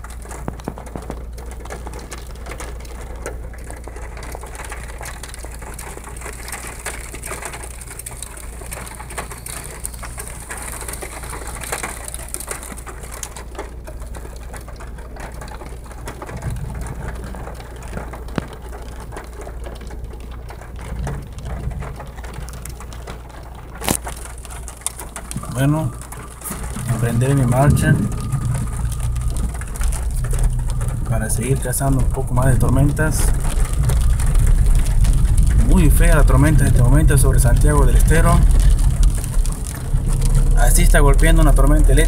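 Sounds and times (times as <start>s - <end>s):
low rumbles: 0.0s - 42.0s
rain pattering on car roof: 0.0s - 42.0s
steady low hum: 24.4s - 40.8s.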